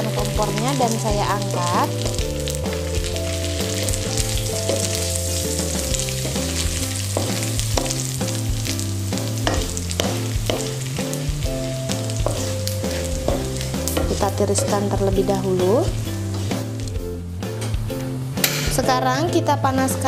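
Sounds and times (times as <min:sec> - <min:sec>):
hot oil sizzling and crackling: 0:00.0 - 0:18.8
background music with bass line: 0:00.0 - 0:20.0
utensils scraping a pan: 0:12.2 - 0:14.8, 0:15.8 - 0:16.7.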